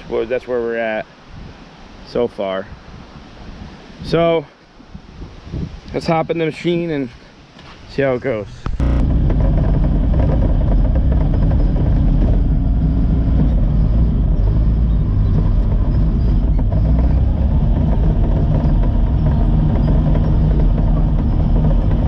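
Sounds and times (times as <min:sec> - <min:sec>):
bulldozer diesel engine running: 0:08.6 - 0:22.0.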